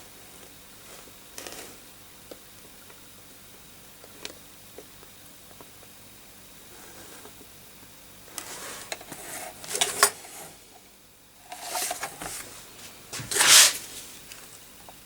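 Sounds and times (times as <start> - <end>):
scraping and rasping handling noise: 8.4 - 10.5, 11.4 - 14.3.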